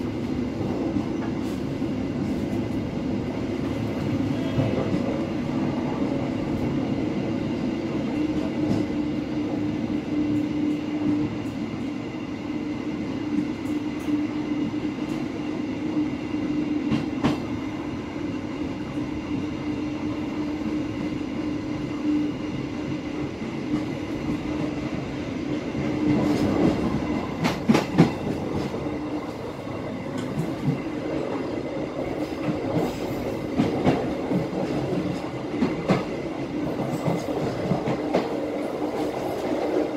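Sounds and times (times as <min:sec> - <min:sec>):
train rumbling hum: 0:00.0 - 0:39.9
train wheels clacking: 0:25.8 - 0:29.4, 0:30.0 - 0:39.9.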